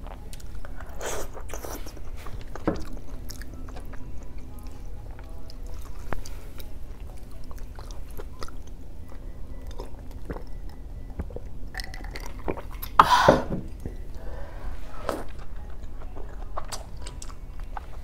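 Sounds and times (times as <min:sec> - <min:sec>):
close chewing of soft food: 0:00.0 - 0:14.3, 0:15.0 - 0:18.0.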